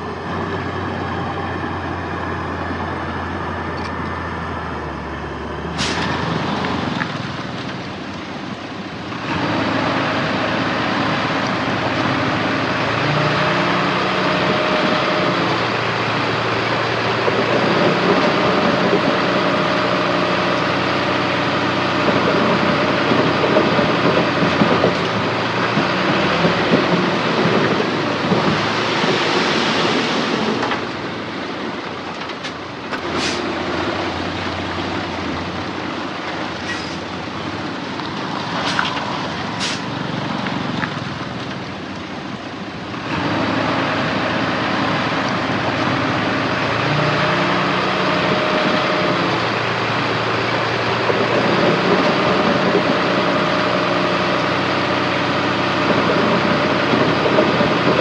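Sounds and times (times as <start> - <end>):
heavy diesel machinery engine: 0.0 - 58.0.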